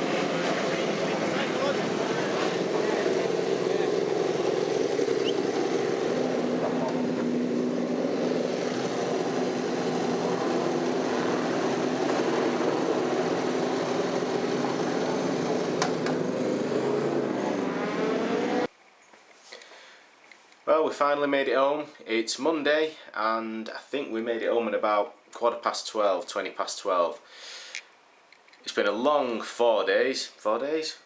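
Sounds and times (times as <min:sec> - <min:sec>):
engine drone: 0:00.0 - 0:18.7
faint rushing noise: 0:00.0 - 0:18.7.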